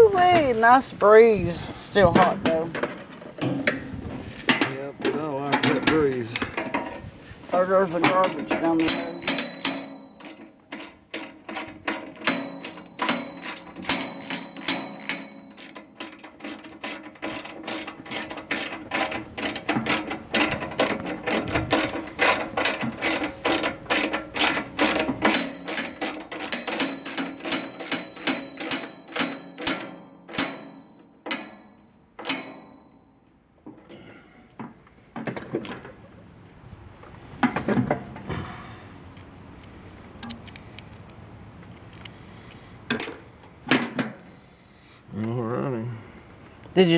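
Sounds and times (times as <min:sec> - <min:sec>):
ratchet wrench clicking: 0:08.3 - 0:31.5.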